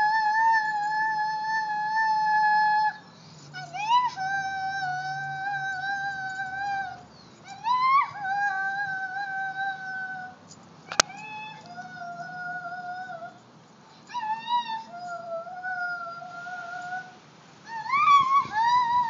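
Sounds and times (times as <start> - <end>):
high wordless voice singing: 0.0 - 13.4, 14.1 - 19.0
sharp click: 10.5 - 11.2.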